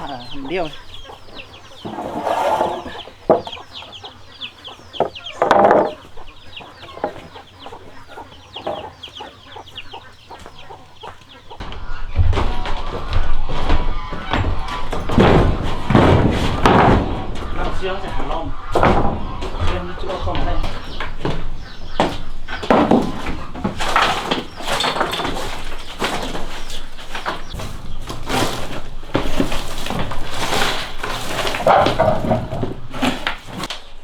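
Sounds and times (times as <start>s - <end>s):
rapid high peeping calls: 0.0s - 15.0s, 17.4s - 27.7s
chickens clucking: 0.0s - 34.0s
rough noise with knocks: 0.0s - 34.0s.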